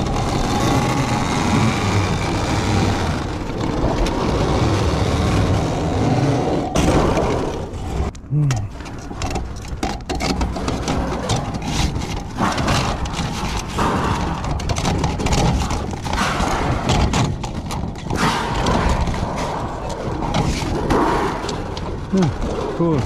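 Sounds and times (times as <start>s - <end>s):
knocking and clattering: 8.8s - 22.8s.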